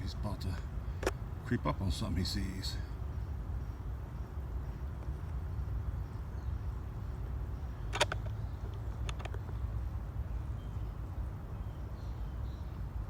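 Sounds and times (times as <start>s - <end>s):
sharp clicks: 7.8s - 9.6s.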